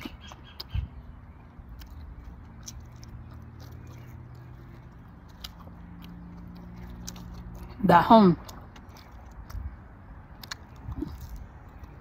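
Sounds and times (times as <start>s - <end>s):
person chewing food: 0.0s - 7.8s, 8.4s - 12.0s
wet mouth clicks: 8.5s - 12.0s.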